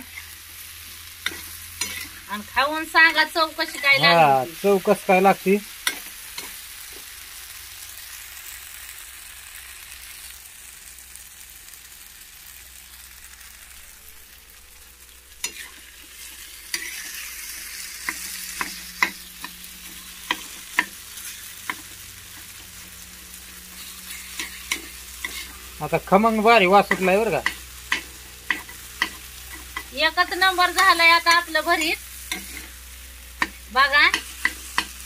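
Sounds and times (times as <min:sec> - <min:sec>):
spatula scraping a pan: 0:00.0 - 0:02.4, 0:15.4 - 0:35.0
food sizzling in a frying pan: 0:00.0 - 0:35.0.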